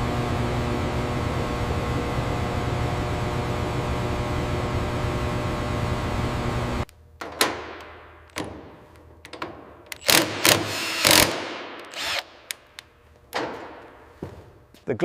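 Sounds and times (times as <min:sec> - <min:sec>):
echoing knocks and clunks: 0:13.3 - 0:14.5.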